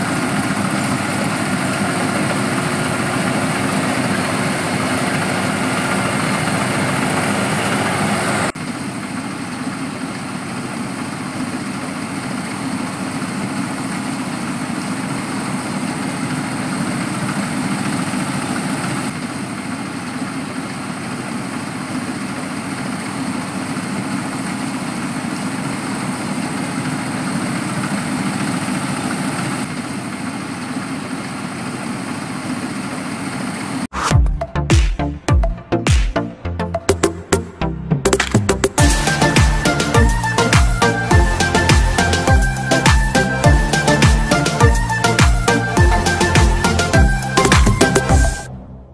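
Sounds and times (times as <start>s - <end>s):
harvester engine running: 0.0s - 48.9s
electronic music: 33.9s - 48.9s.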